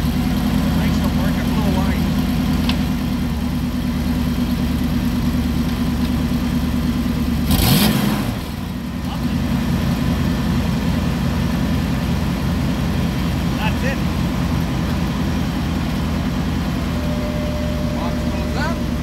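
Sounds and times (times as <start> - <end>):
pickup engine idling: 0.0 - 19.0
engine revving: 7.2 - 19.0.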